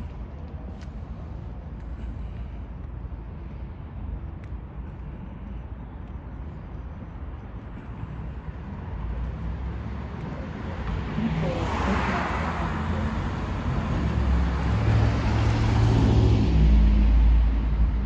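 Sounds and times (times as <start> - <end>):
car passing: 8.3 - 18.0.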